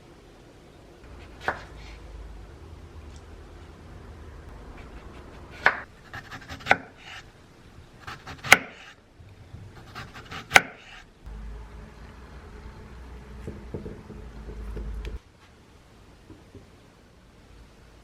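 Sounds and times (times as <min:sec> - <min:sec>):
knife scraping board: 0:01.1 - 0:02.0
knife chopping on cutting board: 0:10.0 - 0:10.9.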